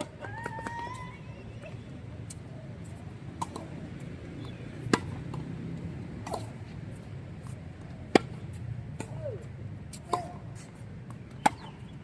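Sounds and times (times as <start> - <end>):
tennis balls struck by rackets: 3.2 - 12.0.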